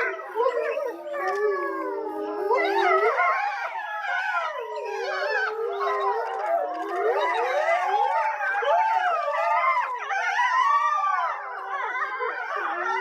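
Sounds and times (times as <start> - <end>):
wolves howling in chorus: 0.0 - 13.0.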